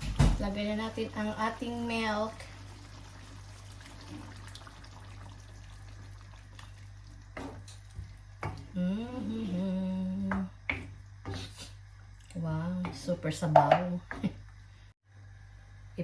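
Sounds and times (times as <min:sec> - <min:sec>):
liquid pouring into a pot: 0:01.0 - 0:08.7.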